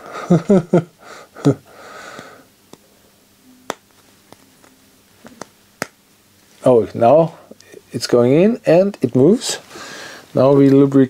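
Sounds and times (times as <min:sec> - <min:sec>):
person exhaling: 0:01.0 - 0:03.1, 0:09.7 - 0:10.3.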